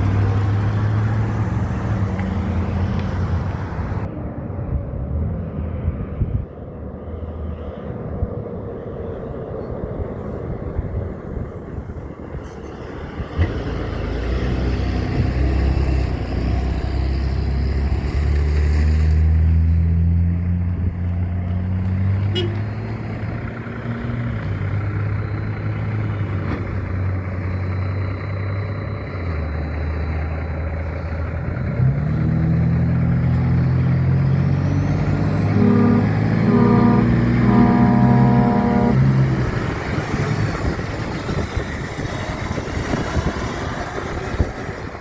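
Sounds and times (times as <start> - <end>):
truck diesel engine running: 0.0 - 4.1, 22.4 - 45.0.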